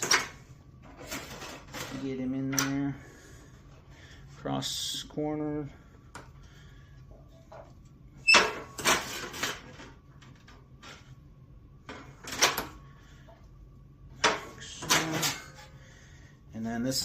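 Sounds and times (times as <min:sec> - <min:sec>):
sheet metal clattering and scraping: 0:08.3 - 0:09.9, 0:14.2 - 0:15.8.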